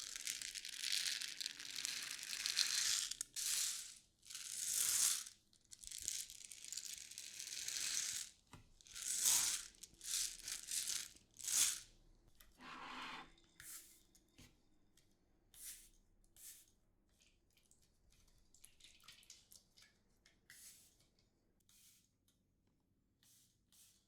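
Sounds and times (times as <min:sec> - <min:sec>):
packing material rustling: 0:00.0 - 0:03.3.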